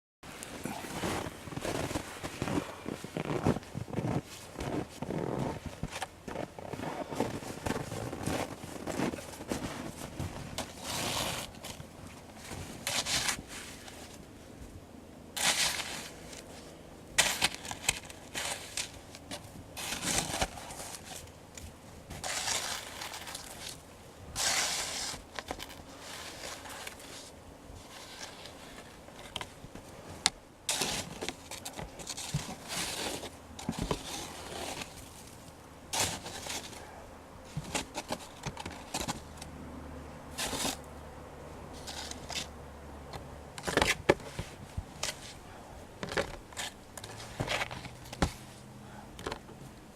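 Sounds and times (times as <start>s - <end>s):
shovel digging into snow: 6.8s - 11.8s, 12.5s - 13.9s, 15.4s - 16.4s, 17.2s - 19.0s, 19.8s - 21.2s, 22.1s - 23.8s, 24.4s - 27.3s, 30.7s - 35.0s, 35.9s - 36.8s, 40.3s - 40.8s, 41.8s - 42.5s.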